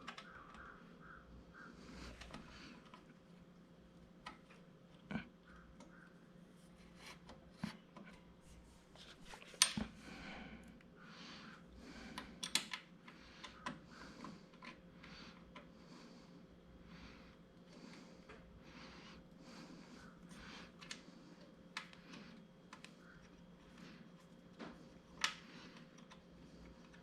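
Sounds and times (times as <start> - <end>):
metal parts clicking and tapping: 12.4 - 12.8.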